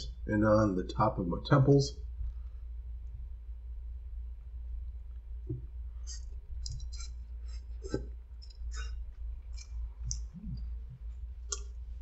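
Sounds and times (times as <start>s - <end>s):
steady low hum: 0.0s - 12.0s
person chewing noodles: 6.0s - 11.9s.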